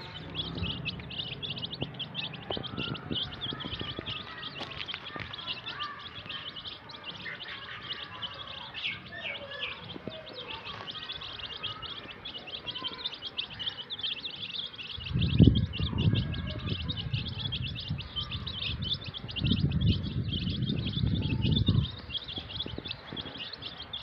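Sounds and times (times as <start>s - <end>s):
low rumble: 0.0s - 4.6s
chicks cheeping: 0.0s - 24.0s.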